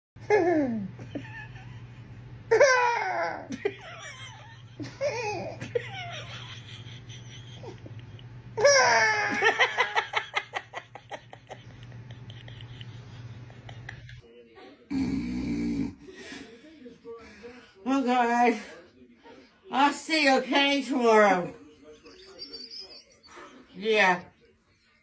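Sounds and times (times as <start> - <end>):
person laughing with squeals: 8.6 - 9.9.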